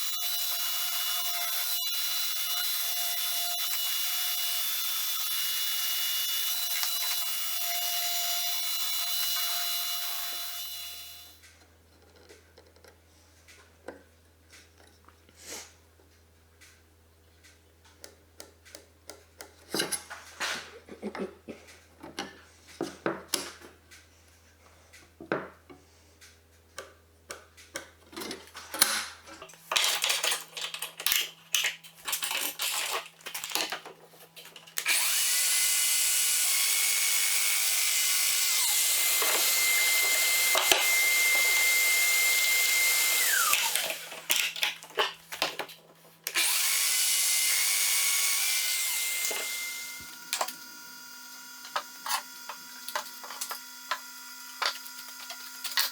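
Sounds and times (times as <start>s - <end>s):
power tool whining: 0.0s - 11.4s, 34.8s - 44.6s, 46.3s - 55.9s
wood and tools knocking: 25.2s - 25.6s.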